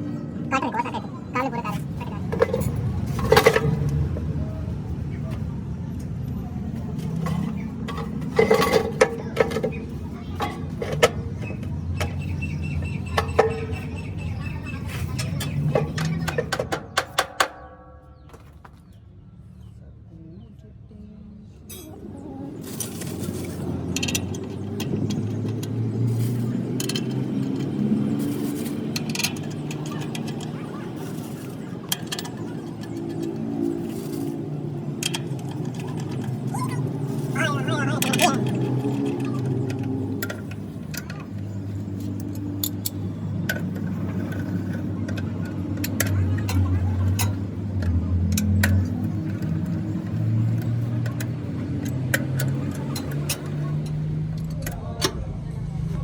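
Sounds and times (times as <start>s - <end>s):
sharp clicks and knocks: 6.9s - 19.0s, 38.0s - 55.4s
workshop machinery humming: 21.7s - 56.0s.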